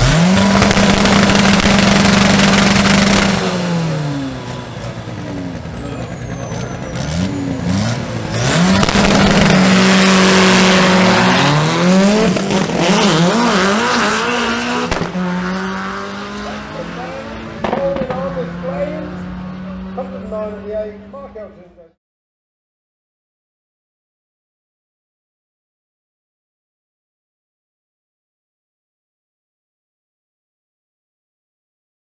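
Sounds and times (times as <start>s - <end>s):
drag car engine revving hard: 0.0s - 20.3s
second drag car engine running: 0.0s - 21.4s.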